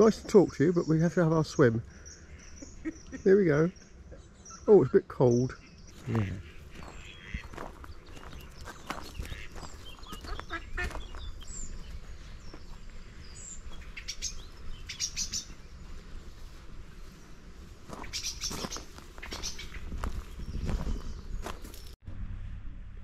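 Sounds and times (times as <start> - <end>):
small birds chirping: 0.0 - 22.0
footsteps crunching on gravel: 5.9 - 22.0.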